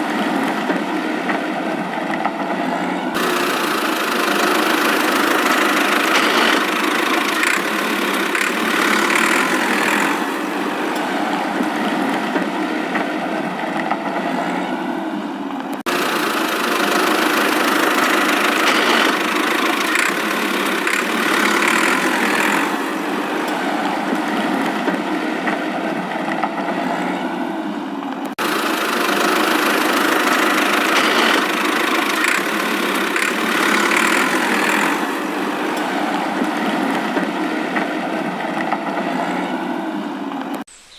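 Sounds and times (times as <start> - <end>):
motor running: 3.1 - 12.6, 15.8 - 25.6, 28.3 - 39.3.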